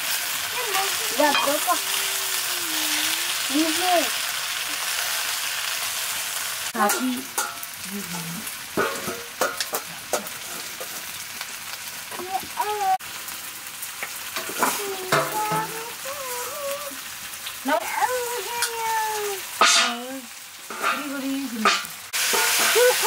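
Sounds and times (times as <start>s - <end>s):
greens sizzling in a wok: 0.0s - 23.0s
ladle clacking against a pan: 6.8s - 7.7s, 8.8s - 11.0s, 20.7s - 23.0s.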